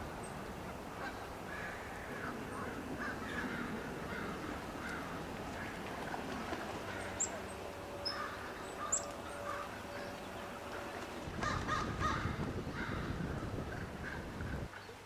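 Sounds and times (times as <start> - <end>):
low rumbling noise: 0.0 - 14.7
birds calling harshly: 6.8 - 10.4.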